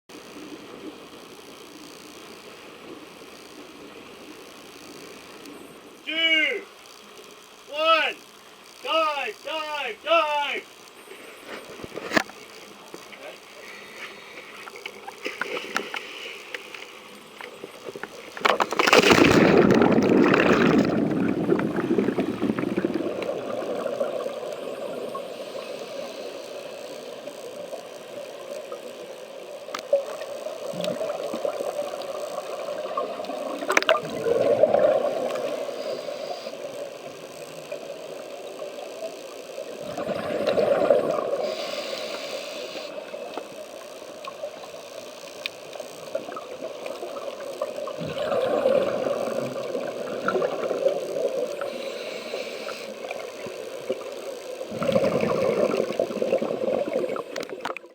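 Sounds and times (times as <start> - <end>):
gurgling regulator bubbles: 17.6 - 27.8, 29.7 - 44.8, 46.0 - 57.9
underwater rushing water rumble: 18.5 - 26.3, 30.6 - 36.1, 39.8 - 41.6, 47.8 - 51.8, 53.2 - 57.5.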